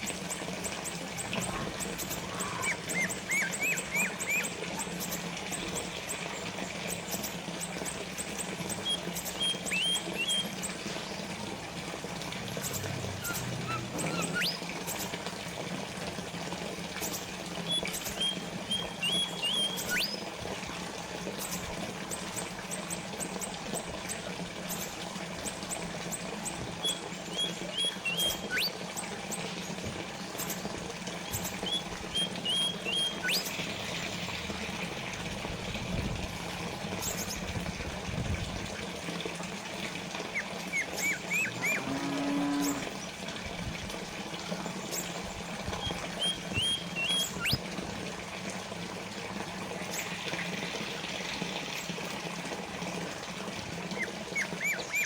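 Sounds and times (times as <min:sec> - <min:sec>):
fountain water trickling: 0:00.0 - 0:55.0
small birds chirping: 0:01.3 - 0:05.2, 0:08.7 - 0:11.2, 0:12.5 - 0:15.1, 0:17.1 - 0:20.2, 0:26.8 - 0:28.7, 0:30.4 - 0:33.7, 0:40.3 - 0:41.8, 0:44.7 - 0:47.6, 0:53.9 - 0:55.0.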